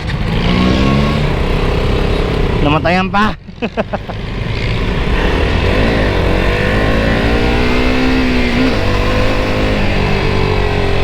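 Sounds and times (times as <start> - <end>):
motorcycle engine revving: 0.0 - 11.0
low rumble: 4.0 - 11.0.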